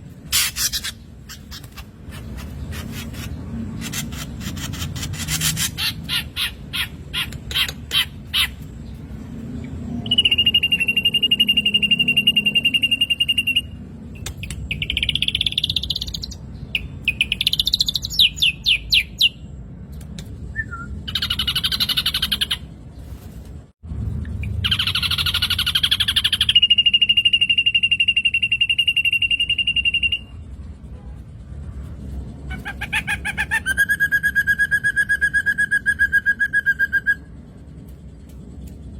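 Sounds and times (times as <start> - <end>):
bird song: 0.0 - 23.2, 24.2 - 30.6.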